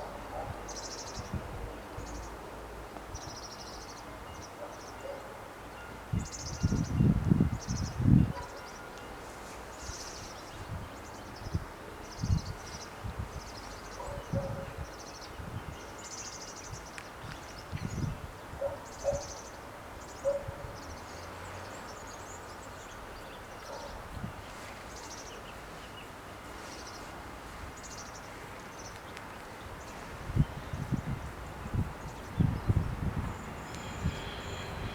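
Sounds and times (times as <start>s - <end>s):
small birds chirping: 9.8s - 34.9s.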